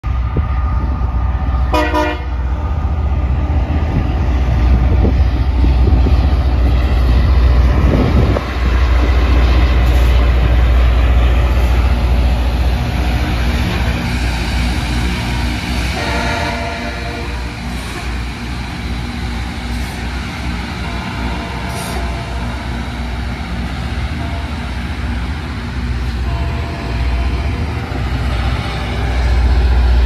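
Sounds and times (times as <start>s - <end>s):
train horn blast: 1.7s - 2.4s, 15.9s - 18.2s, 26.2s - 27.7s.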